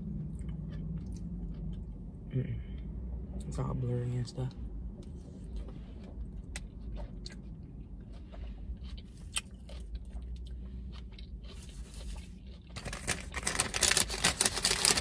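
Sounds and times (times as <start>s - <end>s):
steady low hum: 0.0s - 15.0s
close-up wet chewing: 0.2s - 2.2s, 5.4s - 15.0s.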